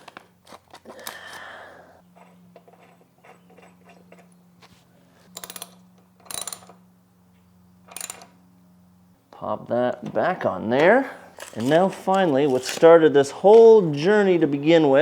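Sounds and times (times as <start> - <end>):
tools scraping: 2.1 - 6.8, 11.3 - 13.0
ratchet wrench clicking: 5.4 - 6.8, 7.9 - 8.4.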